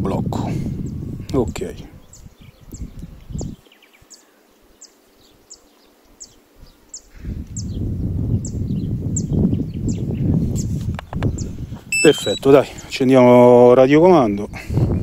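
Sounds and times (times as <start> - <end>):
wind rumble on microphone: 0.0 - 3.6, 6.6 - 12.0, 13.9 - 15.0
bird chirping: 11.3 - 12.6.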